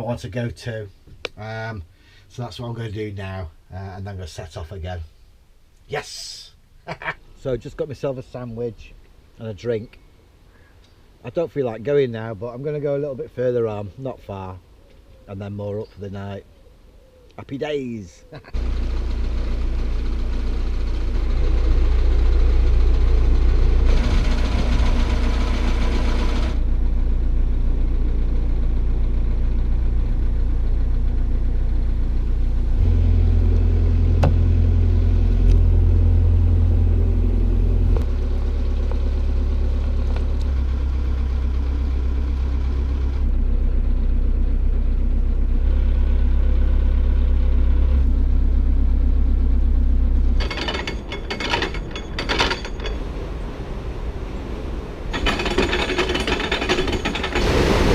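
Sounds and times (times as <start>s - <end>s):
boat diesel engine running: 18.6s - 53.8s.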